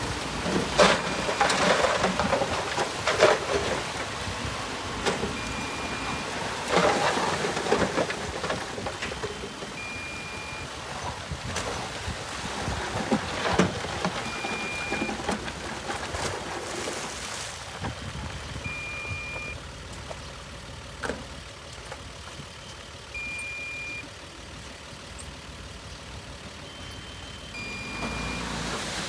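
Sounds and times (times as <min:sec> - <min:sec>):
heavy machinery running: 0:00.0 - 0:11.4
short high beep: 0:09.8 - 0:10.7, 0:18.7 - 0:19.6, 0:23.2 - 0:24.1, 0:26.7 - 0:28.6.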